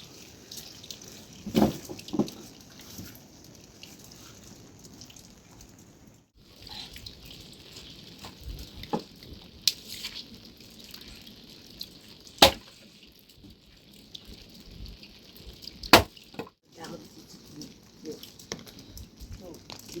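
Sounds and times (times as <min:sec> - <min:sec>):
steady rain: 0:00.0 - 0:20.0
water dripping: 0:00.0 - 0:20.0
sharp knocks: 0:12.4 - 0:12.6.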